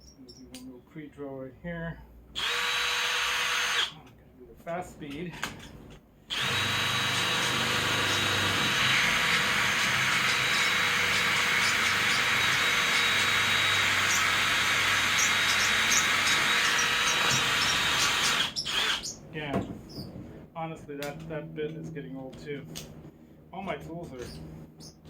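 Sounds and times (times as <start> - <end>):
electric drill whining: 2.4 - 4.0, 6.3 - 19.2.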